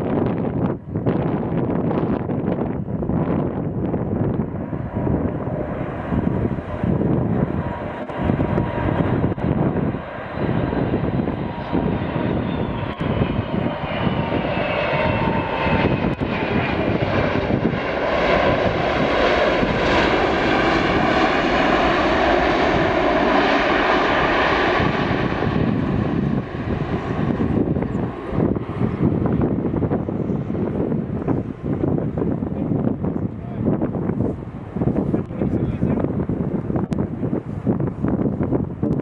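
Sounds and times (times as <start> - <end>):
jet airliner flying past: 0.0 - 39.0.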